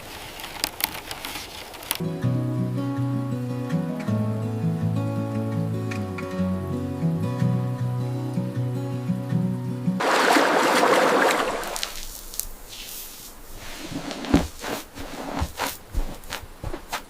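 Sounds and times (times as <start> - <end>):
acoustic guitar music: 2.0 - 11.8
water splashing and sloshing: 10.0 - 12.1.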